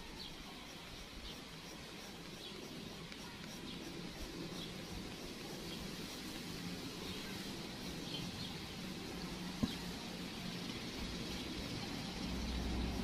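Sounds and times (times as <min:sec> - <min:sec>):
small birds chirping: 0:00.0 - 0:13.0
steady background hiss: 0:00.0 - 0:13.0.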